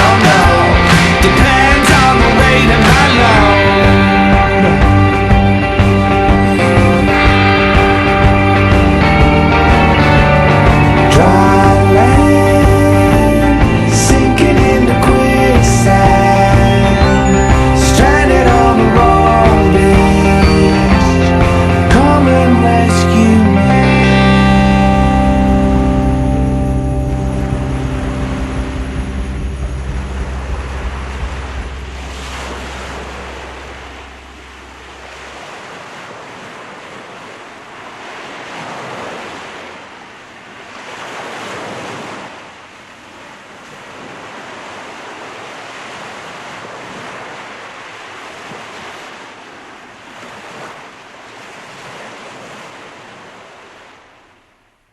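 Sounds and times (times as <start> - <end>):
sustained music chord: 0.0 - 35.5
surf washing onto shore: 0.0 - 54.6.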